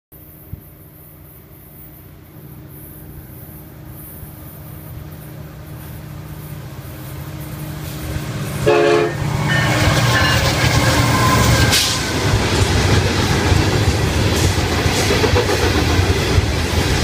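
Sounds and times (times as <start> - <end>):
diesel locomotive rumble: 0.2 - 17.0
train horn toot: 8.6 - 12.1.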